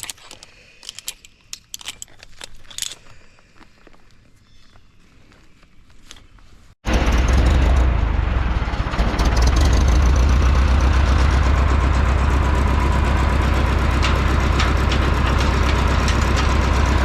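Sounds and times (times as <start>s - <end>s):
large engine rumbling: 6.8s - 17.0s.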